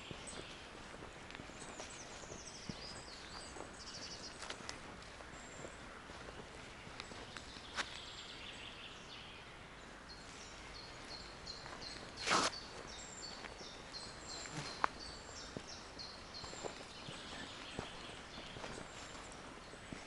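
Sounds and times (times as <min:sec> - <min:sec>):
footsteps on forest floor: 0:00.0 - 0:09.2, 0:09.8 - 0:20.0
footstep scuff: 0:07.0 - 0:08.0, 0:11.9 - 0:12.6.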